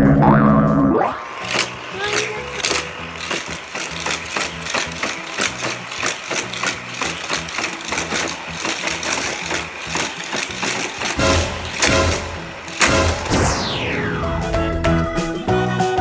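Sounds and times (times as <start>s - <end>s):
toy cars clicking and clattering: 1.2s - 13.3s
motorized booster whirring: 1.2s - 14.6s.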